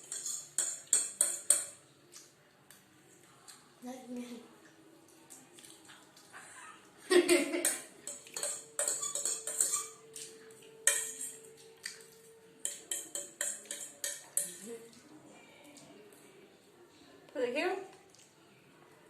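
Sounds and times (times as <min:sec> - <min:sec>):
cutlery clinking on plates: 0:00.0 - 0:01.8, 0:07.6 - 0:14.8.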